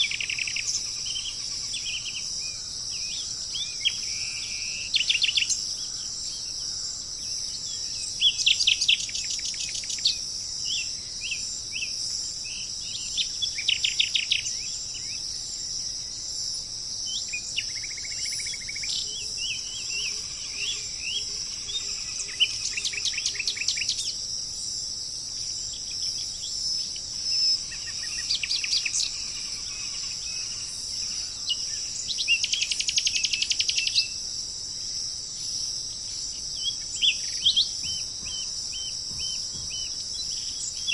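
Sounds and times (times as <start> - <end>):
high-pitched insect drone: 0.0 - 40.9
birds calling: 36.0 - 40.9.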